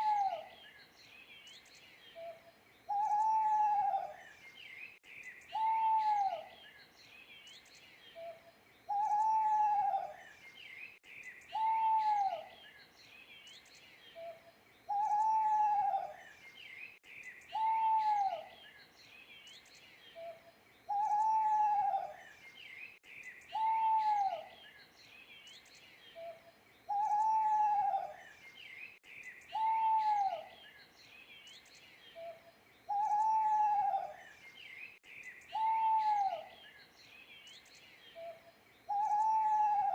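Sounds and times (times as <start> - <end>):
owl hooting: 0.0 - 0.5, 2.2 - 4.2, 5.5 - 6.5, 8.2 - 10.2, 11.5 - 12.5, 14.2 - 16.2, 17.5 - 18.5, 20.2 - 22.2, 23.5 - 24.5, 26.2 - 28.2, 29.5 - 30.6, 32.2 - 34.2, 35.5 - 36.6, 38.2 - 39.9
small birds chirping: 0.0 - 39.9.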